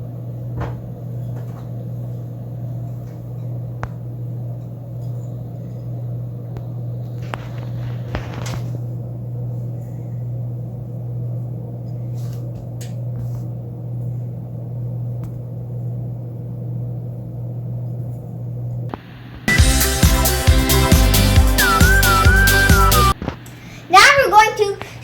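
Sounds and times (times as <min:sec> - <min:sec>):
steady low hum: 0:00.0 - 0:21.2, 0:23.1 - 0:25.0
loud music: 0:19.4 - 0:23.2.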